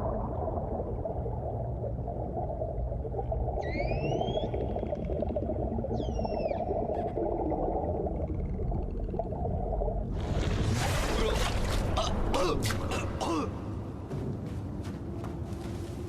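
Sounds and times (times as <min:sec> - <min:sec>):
bubbling swirling water: 0:00.0 - 0:12.6
whale-like whistle call: 0:03.6 - 0:04.6, 0:06.0 - 0:06.8.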